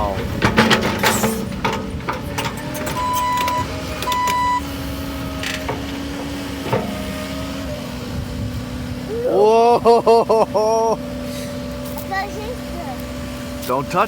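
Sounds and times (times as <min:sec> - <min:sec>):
excavator engine humming: 0:00.0 - 0:14.0
short high beeps: 0:03.0 - 0:04.6.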